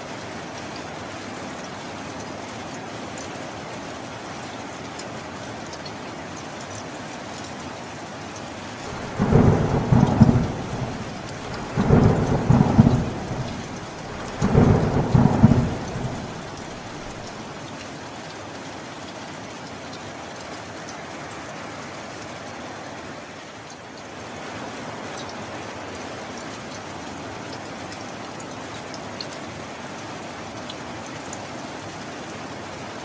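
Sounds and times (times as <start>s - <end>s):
steady rainfall: 0.0s - 33.0s
thunder claps: 8.8s - 17.4s.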